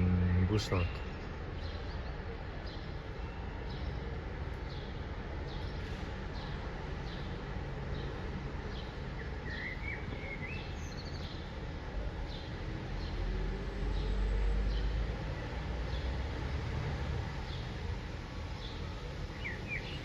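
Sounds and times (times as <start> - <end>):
songbird chirping: 0.0 - 4.0, 18.5 - 20.0.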